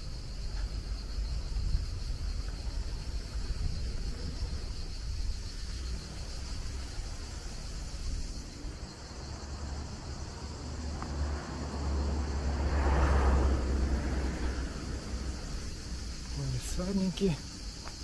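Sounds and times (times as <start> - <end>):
wind rumble on microphone: 0.0 - 9.4
insects chirring: 0.0 - 18.0
broad rushing noise: 5.6 - 17.6.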